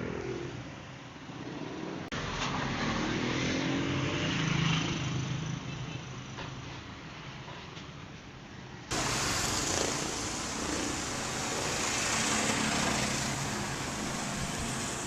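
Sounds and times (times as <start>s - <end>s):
loud rushing noise: 8.9s - 15.0s
vehicle engine running: 8.9s - 15.0s.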